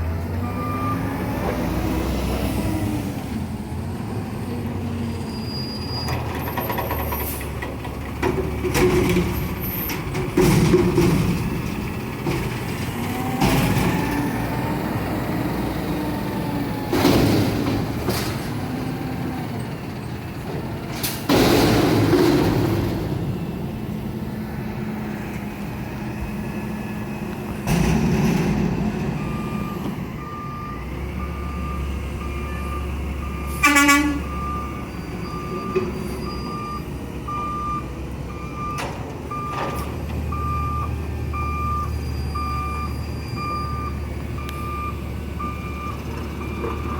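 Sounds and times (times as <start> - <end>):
reversing alarm beeps: 0.5 - 1.1, 29.0 - 46.9
garbage truck engine running: 6.2 - 33.4
truck horn blast: 33.5 - 34.5.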